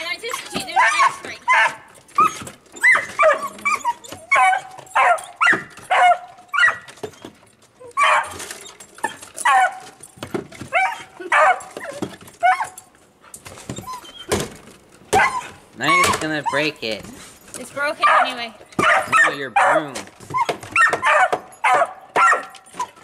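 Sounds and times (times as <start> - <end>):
dog barking: 0.8 - 1.9, 2.9 - 6.9, 8.0 - 8.4, 9.4 - 9.8, 10.8 - 11.7, 15.2 - 16.0, 18.0 - 20.0, 20.8 - 22.6.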